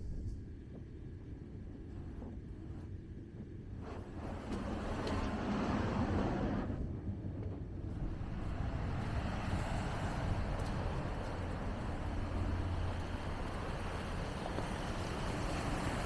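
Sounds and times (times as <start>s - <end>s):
ocean waves breaking: 8.0s - 16.0s.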